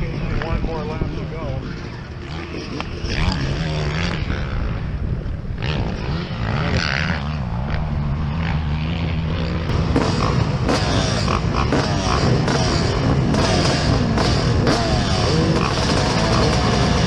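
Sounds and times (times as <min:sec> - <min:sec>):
dirt bike engine revving: 0:00.0 - 0:17.0
rough noise: 0:00.0 - 0:17.0.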